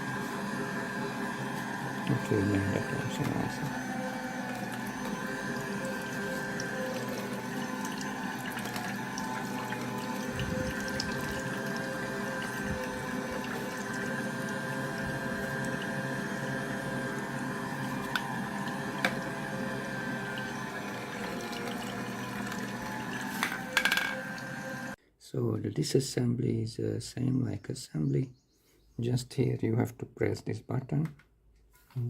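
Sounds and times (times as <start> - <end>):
juicer motor humming: 0.0 - 25.0.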